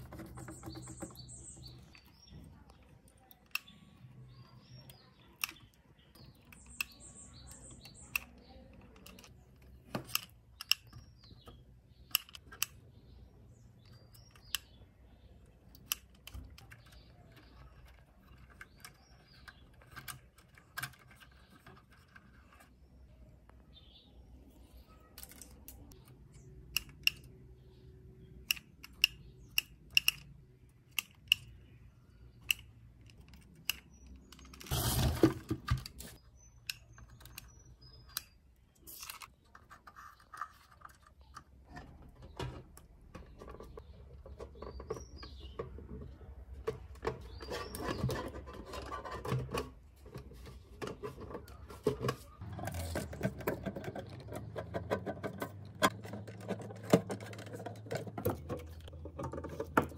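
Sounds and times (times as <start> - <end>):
clicks and taps of connectors: 0.1 - 12.8, 15.6 - 22.0, 25.2 - 34.6.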